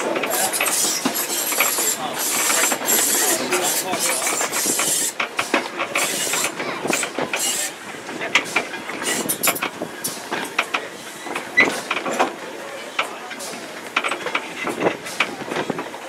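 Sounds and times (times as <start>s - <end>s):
train carriage rattling and clicking: 0.0s - 16.0s
wheels rushing along track: 0.0s - 16.0s.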